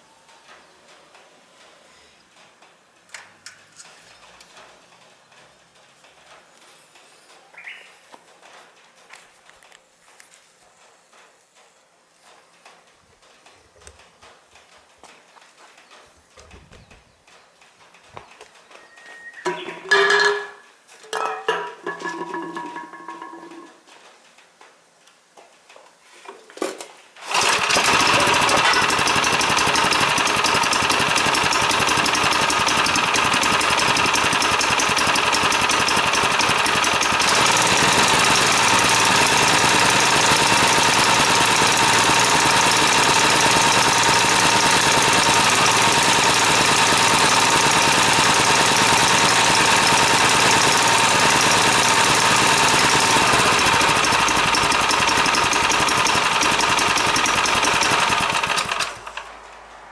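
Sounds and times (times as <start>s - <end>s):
small engine running: 27.2s - 59.3s
starter cord pulls: 27.2s - 59.3s.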